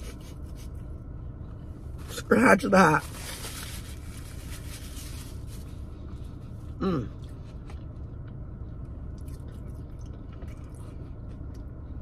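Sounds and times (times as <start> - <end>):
steady low hum: 0.0 - 12.0
person chewing food: 7.1 - 11.8.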